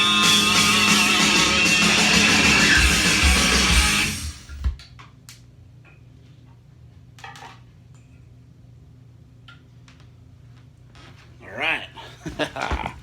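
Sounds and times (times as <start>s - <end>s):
rock music with electric guitar: 0.0s - 4.7s.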